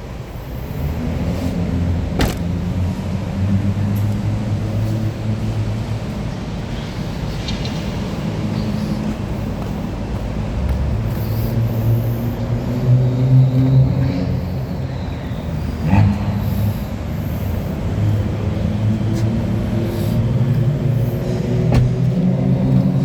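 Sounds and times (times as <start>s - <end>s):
car engine running: 1.7s - 3.1s.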